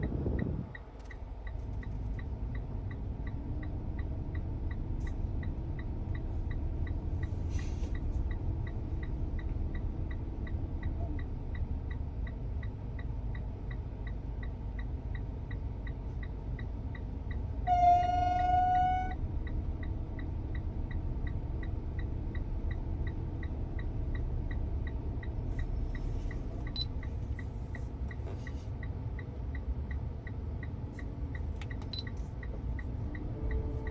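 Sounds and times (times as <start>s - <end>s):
light even ticking: 0.0s - 7.0s, 8.0s - 17.6s, 19.4s - 33.9s
car ac rumble: 0.0s - 33.9s
loud horn-like tone: 17.7s - 19.2s, 33.4s - 33.9s.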